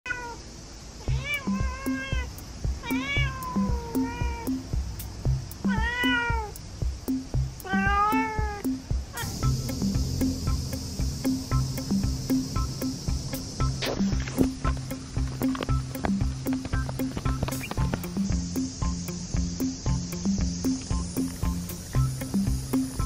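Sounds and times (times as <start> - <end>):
cat meowing: 0.1 - 0.4, 1.0 - 4.6, 5.7 - 6.6, 7.6 - 9.3
background music with beat: 1.1 - 23.0.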